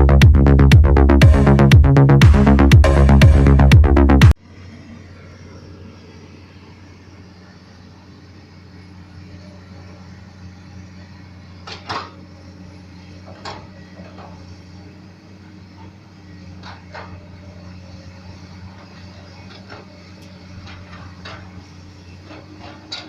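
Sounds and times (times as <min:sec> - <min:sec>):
electronic music: 0:00.0 - 0:04.4
excavator diesel engine running: 0:00.0 - 0:23.0.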